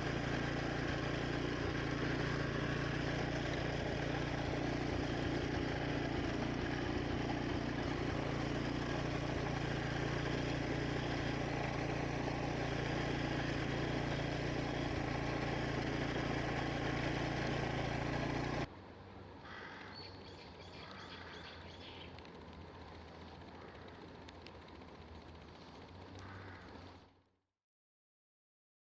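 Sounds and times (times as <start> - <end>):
mower engine running: 0.0 - 27.3
birds chirping: 19.5 - 22.2, 23.2 - 27.0.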